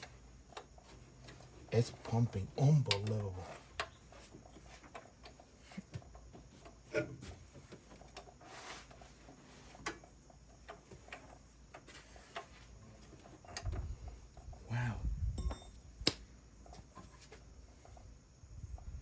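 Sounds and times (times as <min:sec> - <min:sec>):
faint clicks and light knocks: 0:00.0 - 0:14.6.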